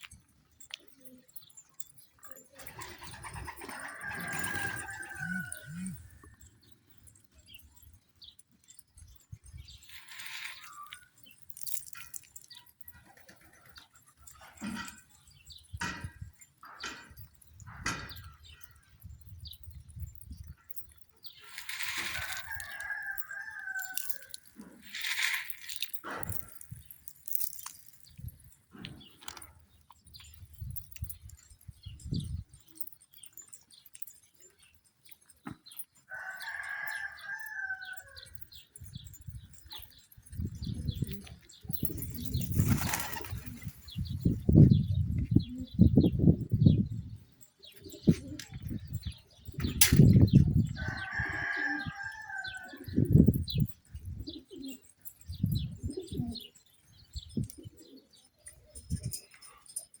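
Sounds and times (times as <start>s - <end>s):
drawn-out pigeon call: 0.0s - 60.0s
small birds chirping: 0.0s - 60.0s
pigeons cooing: 2.6s - 6.5s, 40.8s - 46.4s, 47.7s - 48.7s, 54.0s - 56.6s
rooster crowing: 3.7s - 6.0s, 36.1s - 38.2s, 50.8s - 52.8s.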